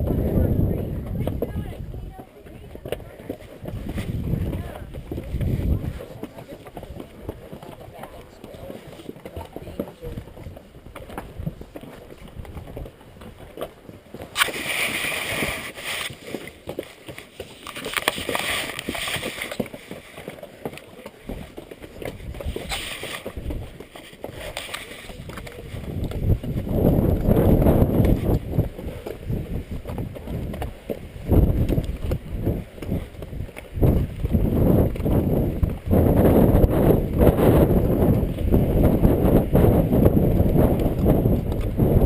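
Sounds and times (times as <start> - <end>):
wind buffeting microphone: 0.0 - 8.7, 9.4 - 13.4, 21.3 - 42.0
hooves clopping on rocky trail: 0.0 - 42.0.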